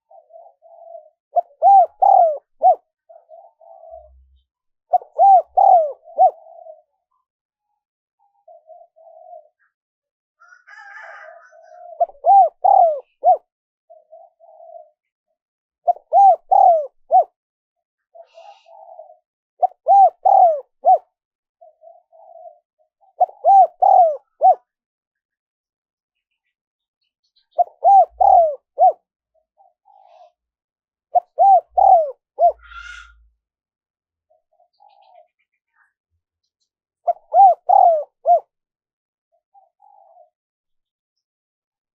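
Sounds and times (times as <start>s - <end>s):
dove cooing: 0.0s - 7.2s, 8.3s - 9.8s, 10.4s - 15.1s, 15.8s - 17.4s, 18.1s - 24.8s, 27.5s - 29.0s, 29.6s - 30.4s, 31.1s - 33.3s, 34.5s - 35.4s, 37.0s - 38.5s, 39.5s - 40.4s.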